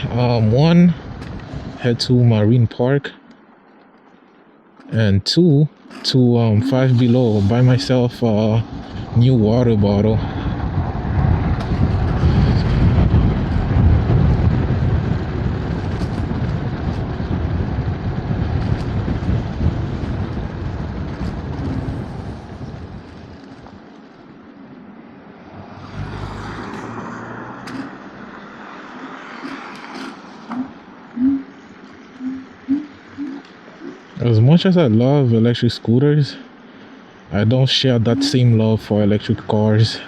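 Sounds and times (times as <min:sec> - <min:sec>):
wind buffeting microphone: 0:00.0 - 0:02.9, 0:05.8 - 0:24.4, 0:25.8 - 0:35.6
road and traffic noise: 0:00.0 - 0:40.0
short low blips: 0:30.0 - 0:34.5.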